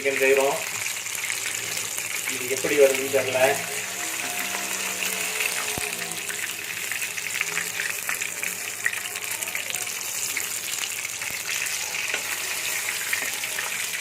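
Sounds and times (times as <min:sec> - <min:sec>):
chicken deep-frying in oil: 0:00.0 - 0:14.0.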